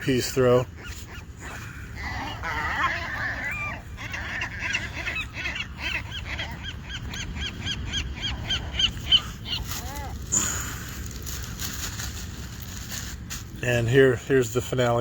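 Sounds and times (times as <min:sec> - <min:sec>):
seagulls calling: 0:00.0 - 0:11.1.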